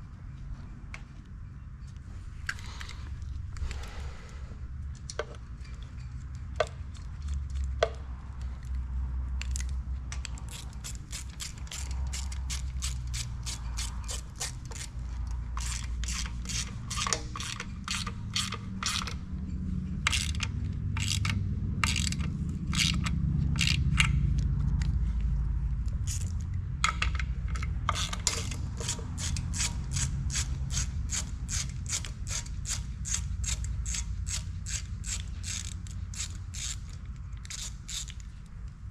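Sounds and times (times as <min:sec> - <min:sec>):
steady low hum: 0:00.0 - 0:38.9
ratchet wrench clicking: 0:09.4 - 0:19.2, 0:20.0 - 0:24.9, 0:26.0 - 0:38.3.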